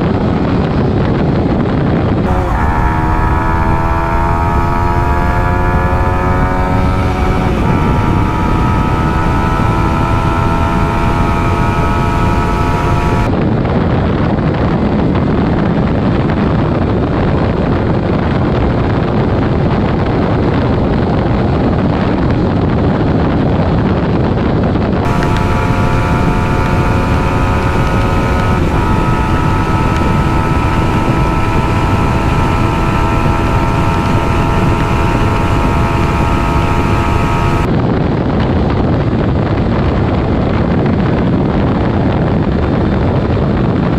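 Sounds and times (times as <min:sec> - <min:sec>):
wind rumbling on microphone: 0:00.0 - 0:43.9
motorcycle engine at high revs: 0:02.2 - 0:13.4, 0:25.0 - 0:37.8.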